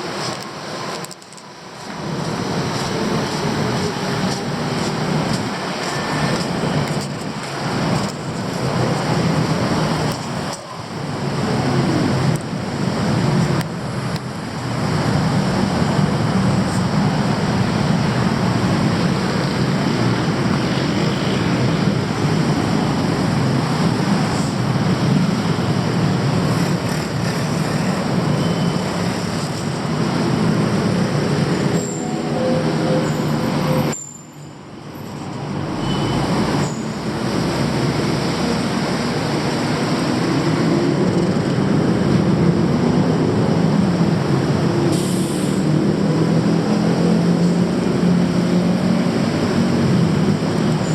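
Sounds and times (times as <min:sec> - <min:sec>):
train rumbling: 0:00.0 - 0:50.9.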